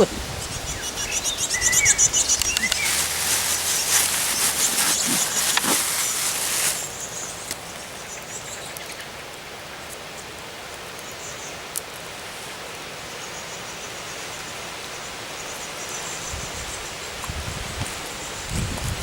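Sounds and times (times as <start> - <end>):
small birds chirping: 0.0 - 9.9
steady outdoor hiss: 0.0 - 19.0.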